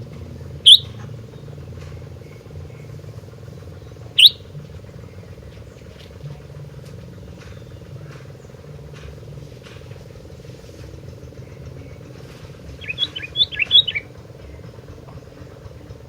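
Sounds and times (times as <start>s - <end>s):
low background drone: 0.0s - 16.0s
bird singing whistled notes: 0.5s - 3.0s, 3.7s - 5.3s, 12.8s - 14.2s.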